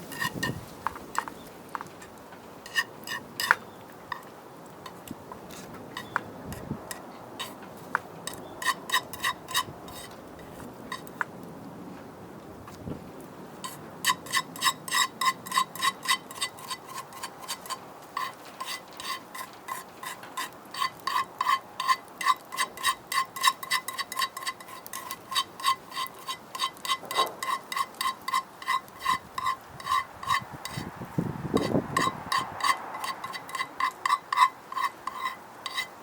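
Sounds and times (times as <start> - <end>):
utensil tapping metal pot: 13.6 - 30.8, 31.6 - 35.9.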